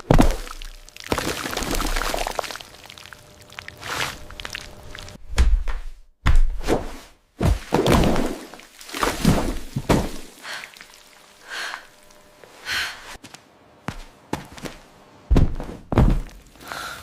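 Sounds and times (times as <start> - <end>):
dull thuds and knocks: 9.2 - 10.3, 15.3 - 16.4.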